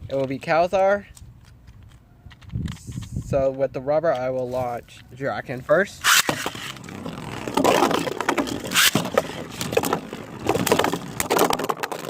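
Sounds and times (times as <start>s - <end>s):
spinning tops whirring and grinding: 6.0s - 12.0s.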